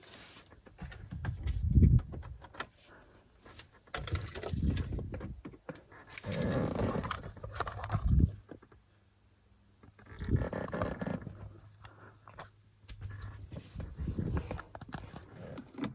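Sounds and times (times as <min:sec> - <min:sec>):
low thumps and rustles: 0:00.6 - 0:02.5, 0:04.0 - 0:05.7, 0:12.9 - 0:15.9
handling clicks and rattles: 0:03.9 - 0:08.3.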